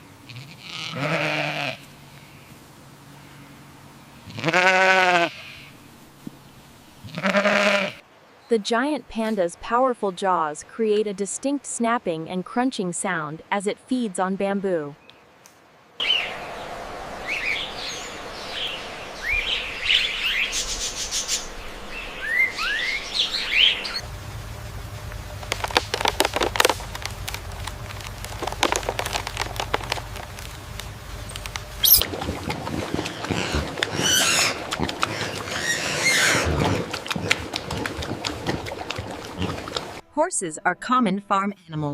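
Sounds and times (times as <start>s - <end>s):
birds chirping: 16.0s - 24.0s, 31.2s - 40.0s
sharp snapping and crackling clicks: 25.1s - 32.0s.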